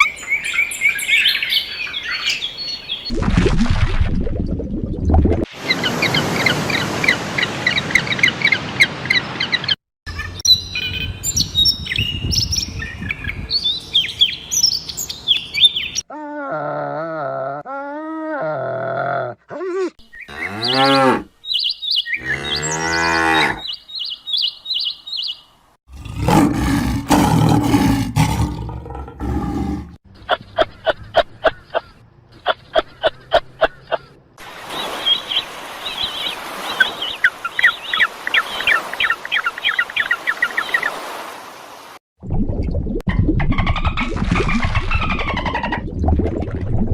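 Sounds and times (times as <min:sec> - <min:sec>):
cow mooing: 0:20.3 - 0:21.3, 0:22.2 - 0:23.6.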